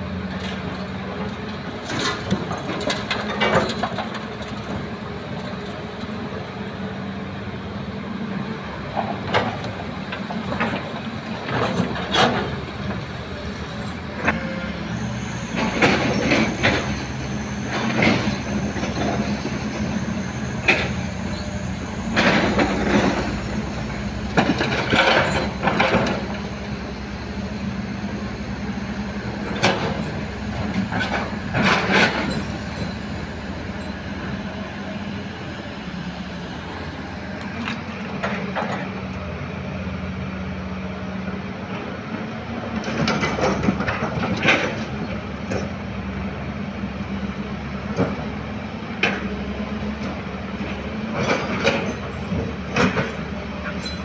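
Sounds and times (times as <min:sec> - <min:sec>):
heavy diesel engines running: 0:00.0 - 0:54.0.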